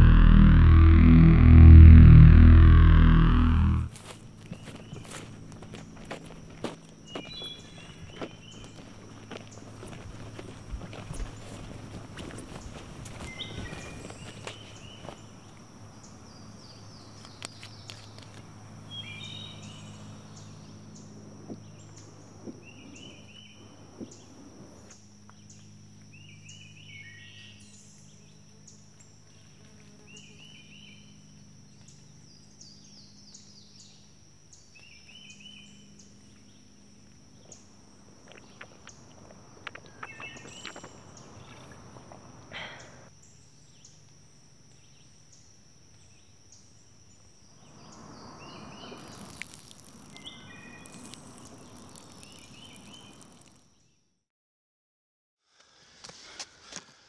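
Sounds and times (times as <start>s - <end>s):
thin high tone: 0.0s - 4.0s
low steady hum: 0.0s - 17.2s
bird singing chirping phrases: 7.1s - 8.8s, 47.6s - 53.5s.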